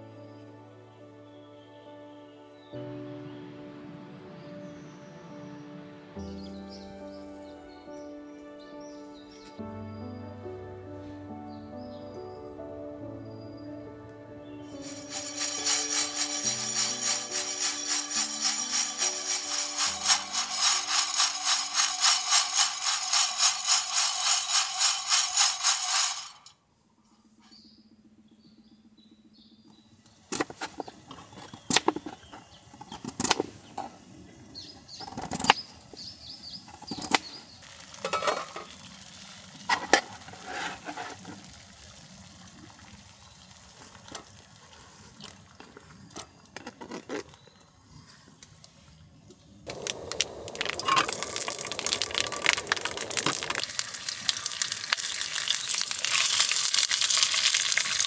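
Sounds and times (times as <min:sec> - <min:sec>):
music with shaker rhythm: 0:14.7 - 0:26.4
faint high chirps: 0:49.7 - 0:54.5.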